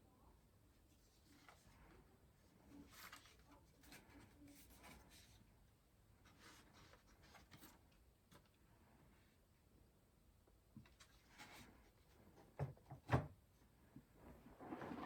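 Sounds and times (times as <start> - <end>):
rustling and scraping of hardware: 14.2 - 15.0.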